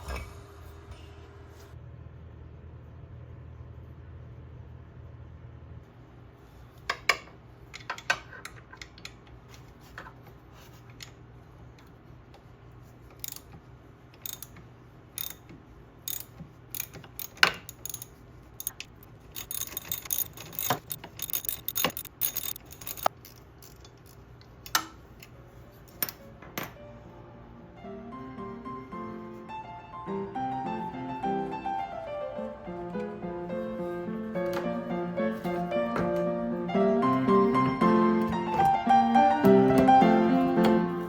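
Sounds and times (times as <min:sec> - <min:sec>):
hand tools clicking and knocking: 0:14.2 - 0:14.6, 0:15.2 - 0:24.9.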